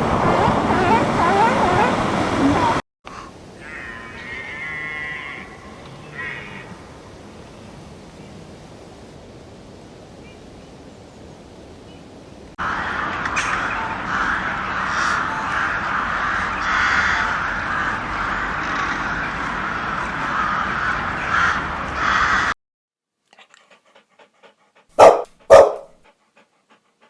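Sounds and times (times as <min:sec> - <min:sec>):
birds calling: 0:00.0 - 0:02.8.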